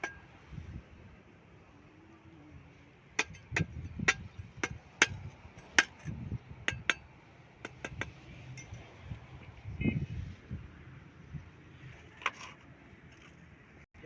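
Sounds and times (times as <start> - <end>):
metal tool clinking: 3.2 - 6.1, 7.7 - 8.9.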